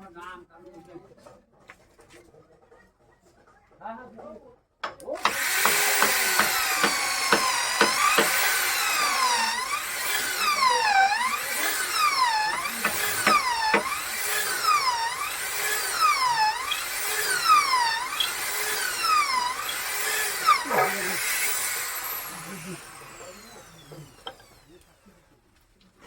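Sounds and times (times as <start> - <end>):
power tool cutting wood: 5.1 - 25.2
sharp knocks: 5.2 - 8.5, 12.5 - 14.0.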